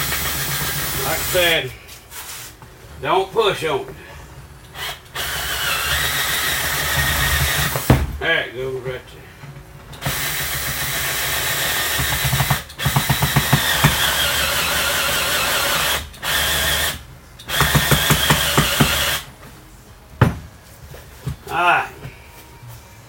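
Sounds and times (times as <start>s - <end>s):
rapid clicking of drill: 0.0s - 1.4s, 4.7s - 7.9s, 10.0s - 19.3s
drill driving screws into wood: 0.0s - 1.6s, 4.7s - 8.0s, 10.0s - 19.3s.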